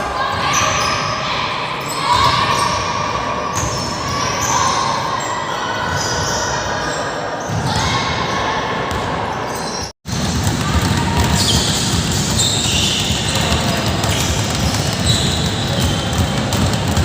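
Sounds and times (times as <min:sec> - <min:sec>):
balls bouncing thuds: 0:10.1 - 0:17.0.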